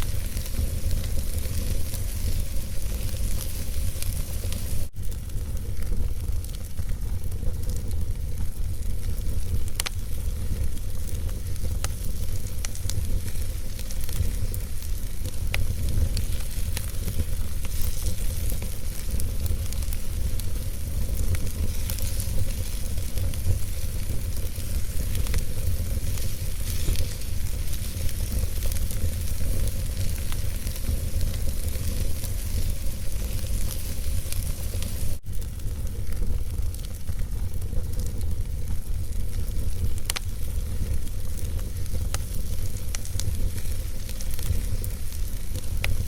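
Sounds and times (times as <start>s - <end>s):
fire rumble and hiss: 0.0s - 46.0s
wood fire crackling and popping: 0.0s - 46.0s.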